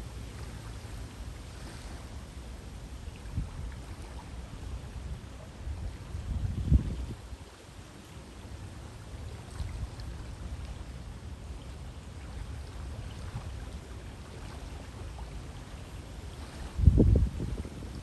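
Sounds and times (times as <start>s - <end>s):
faint water splashes: 0.0s - 18.0s
river water flowing: 0.0s - 18.0s
wind buffeting microphone: 3.1s - 7.5s, 16.4s - 18.0s.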